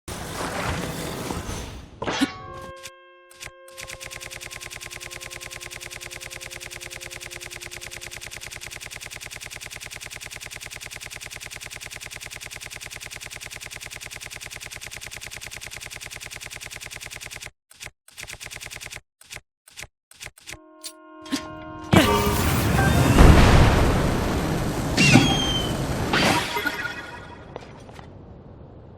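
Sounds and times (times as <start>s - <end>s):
rapid rattle of sharp shots: 3.4s - 20.6s.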